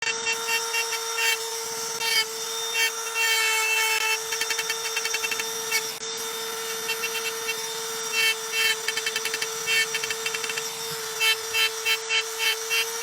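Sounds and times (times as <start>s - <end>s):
machine humming and rasping: 0.0s - 13.0s.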